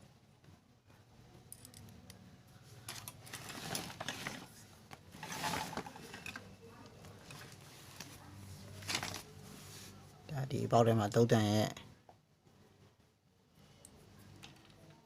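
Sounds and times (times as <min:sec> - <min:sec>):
metal parts clicking and rattling: 0:01.5 - 0:02.0.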